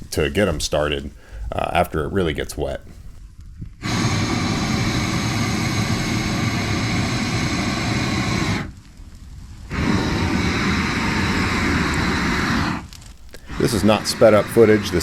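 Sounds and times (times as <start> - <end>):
flames roaring: 0.0 - 15.0.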